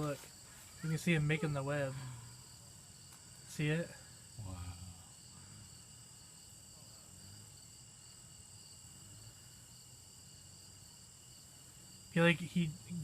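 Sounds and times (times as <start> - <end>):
crickets chirring: 0.0 - 13.0
low background noise: 0.0 - 13.0.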